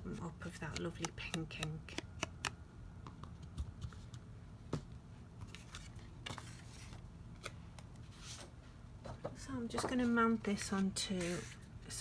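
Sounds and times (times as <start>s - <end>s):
paper clicks and taps: 0.6s - 3.7s.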